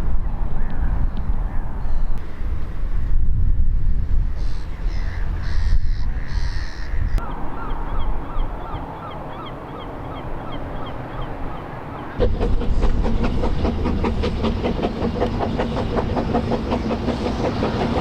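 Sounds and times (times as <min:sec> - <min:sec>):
wind rumble on microphone: 0:00.0 - 0:08.9
bird calling: 0:04.4 - 0:12.2.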